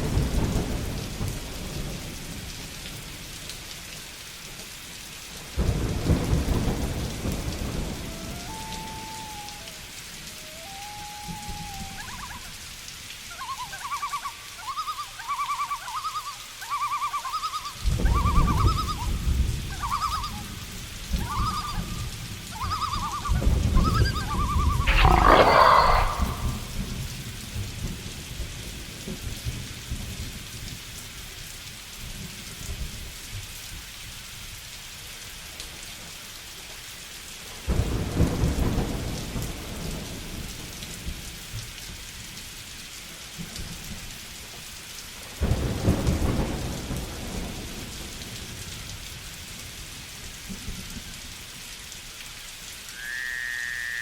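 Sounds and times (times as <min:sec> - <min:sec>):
steady rain: 0:00.0 - 0:54.0
thunder claps rumbling: 0:05.6 - 0:09.4, 0:23.2 - 0:27.2
animal calling: 0:22.6 - 0:26.9.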